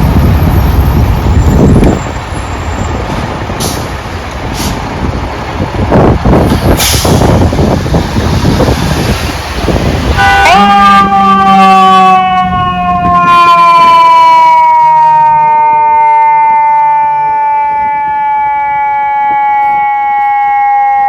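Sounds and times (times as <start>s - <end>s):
mechanical siren winding down: 10.2s - 21.0s.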